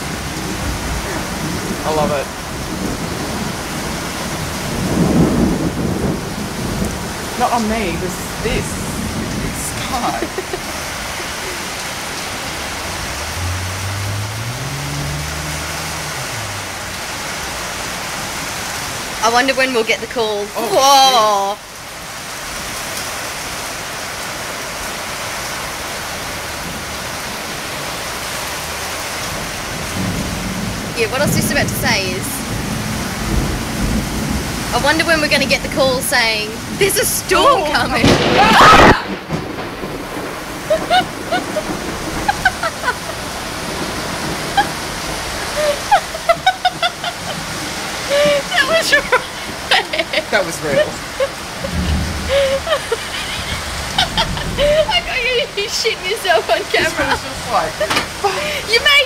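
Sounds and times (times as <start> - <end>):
loud thunder crack: 0.0 - 16.9, 29.4 - 48.5, 50.3 - 58.6
heavy rain falling: 0.0 - 59.0
low engine-like hum: 12.2 - 17.1
person screaming: 20.6 - 21.6, 37.4 - 39.1, 48.1 - 49.1.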